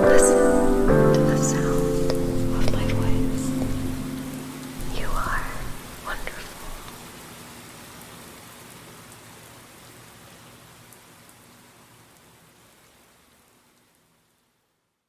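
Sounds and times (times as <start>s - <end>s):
faint low music notes: 0.0s - 5.4s
rain with drop ticks: 0.0s - 14.8s.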